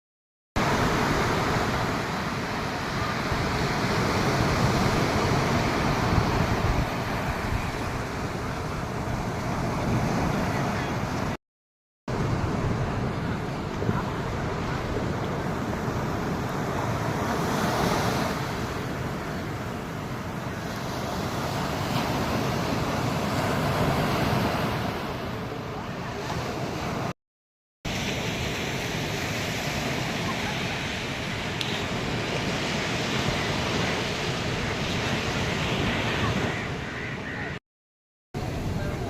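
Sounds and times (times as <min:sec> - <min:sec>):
ocean surf washing onto beach: 0:00.6 - 0:11.4, 0:12.1 - 0:27.1, 0:27.9 - 0:37.6, 0:38.4 - 0:39.0
wind on microphone: 0:00.7 - 0:11.4.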